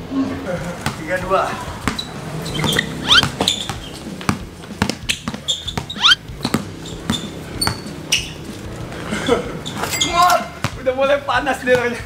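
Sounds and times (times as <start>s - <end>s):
basketball dribbling: 1.8s - 8.4s
sneakers squeaking on court: 1.8s - 8.5s, 9.6s - 10.8s.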